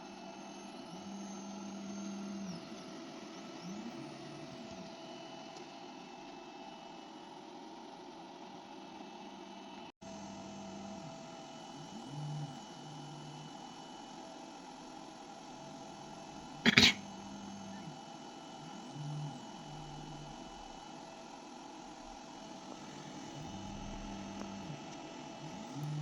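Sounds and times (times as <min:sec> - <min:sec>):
machine humming: 0:15.4 - 0:26.0
low motor tones: 0:21.9 - 0:26.0.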